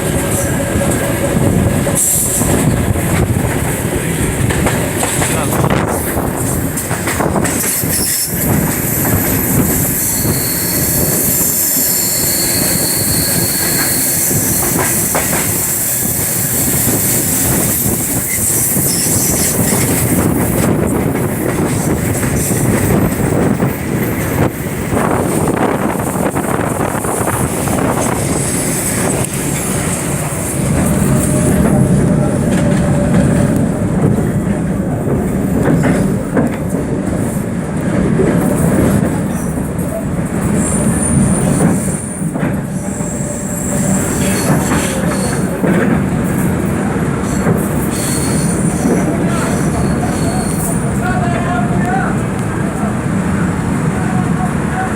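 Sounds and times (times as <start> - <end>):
wheels squealing on rails: 0.0 - 3.2, 5.0 - 34.3, 38.4 - 52.8
train rail noise: 0.0 - 54.9
wheels clacking over rail joints: 0.1 - 9.7.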